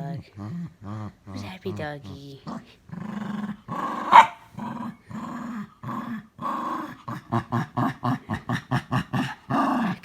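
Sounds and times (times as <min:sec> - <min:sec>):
dog growling: 0:02.4 - 0:10.0.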